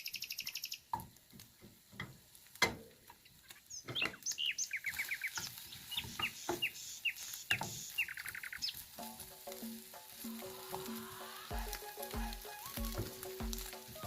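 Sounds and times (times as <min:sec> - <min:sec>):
small birds chirping: 0:00.0 - 0:14.0
descending bird notes: 0:03.6 - 0:08.8, 0:10.4 - 0:14.0.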